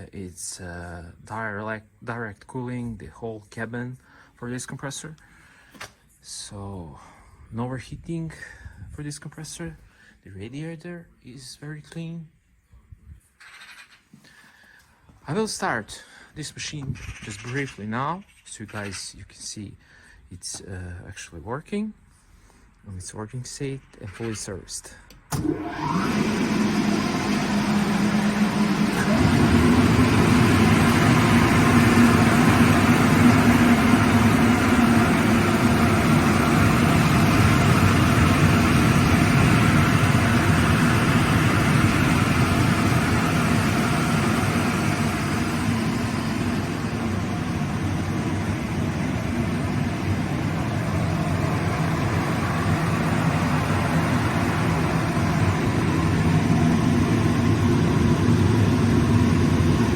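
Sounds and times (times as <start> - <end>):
air compressor running: 25.3 - 59.9.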